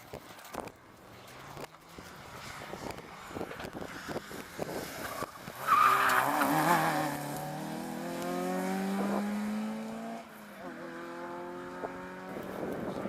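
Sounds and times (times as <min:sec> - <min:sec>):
car engine revving: 0:04.1 - 0:12.8.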